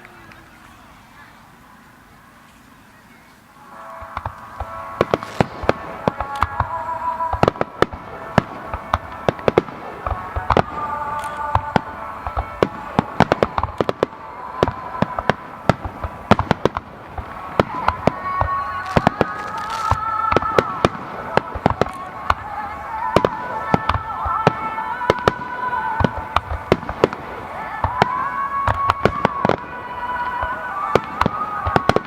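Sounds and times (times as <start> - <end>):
fireworks bangs and crackling: 3.4 - 32.0.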